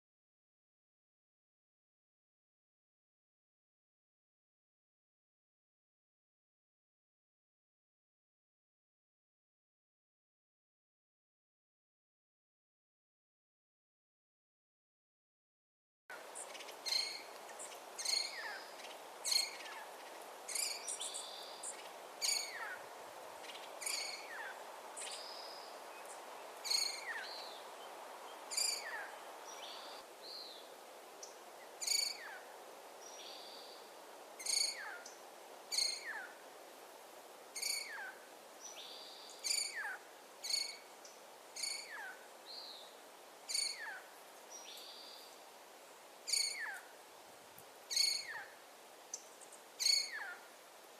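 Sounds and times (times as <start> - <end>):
background hiss: 16.1 - 50.9.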